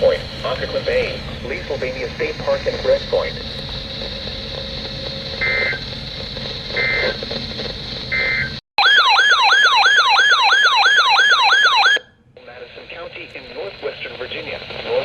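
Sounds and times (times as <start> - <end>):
radio hiss: 0.0 - 8.6, 12.4 - 15.0
data tone bursts: 5.3 - 5.9, 6.7 - 7.2, 8.1 - 8.6
electronic alert tone sweeping down: 5.4 - 5.8.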